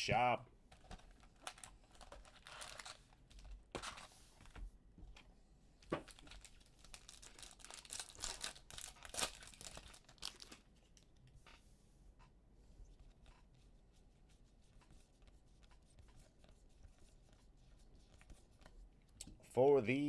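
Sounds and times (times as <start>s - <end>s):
plastic wrapping crinkling: 0.7s - 3.9s, 5.8s - 10.7s
knife cutting plastic wrapping: 7.0s - 10.5s.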